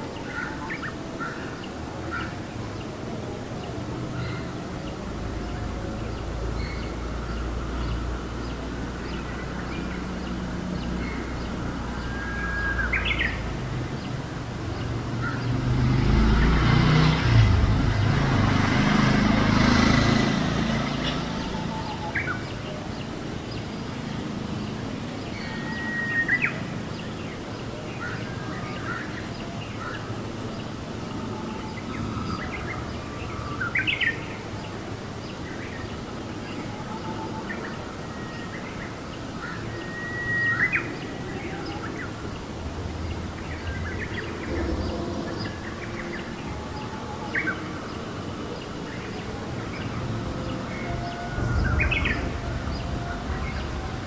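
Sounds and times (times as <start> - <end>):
broad rush with low rumble: 42.0 - 54.0.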